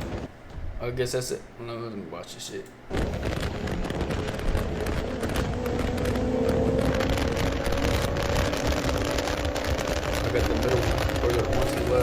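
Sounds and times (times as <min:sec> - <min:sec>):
race car engines running: 0:02.9 - 0:12.0.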